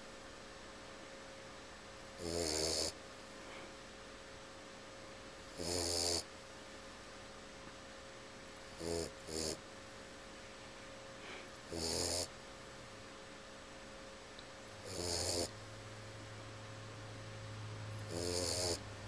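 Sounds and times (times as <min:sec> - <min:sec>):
puppy snoring: 0:02.2 - 0:03.0, 0:05.5 - 0:06.3, 0:08.7 - 0:09.6, 0:11.2 - 0:12.3, 0:14.8 - 0:15.6, 0:18.0 - 0:18.9.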